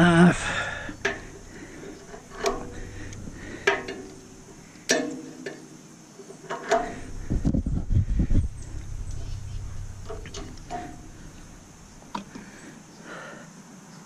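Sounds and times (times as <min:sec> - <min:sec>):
metallic clanks and knocks: 0:00.5 - 0:05.6, 0:06.5 - 0:12.4.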